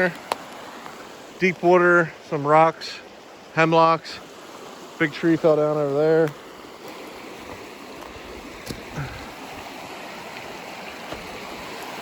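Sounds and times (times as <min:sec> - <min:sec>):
river rapids rushing: 0:03.3 - 0:12.0.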